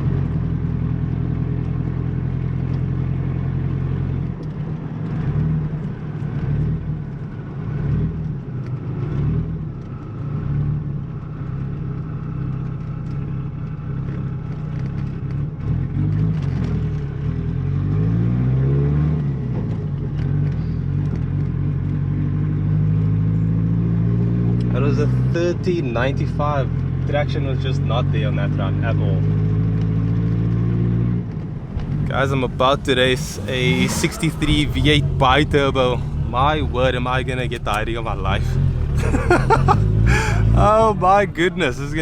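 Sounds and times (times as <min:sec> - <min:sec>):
car engine running: 0:31.2 - 0:42.0.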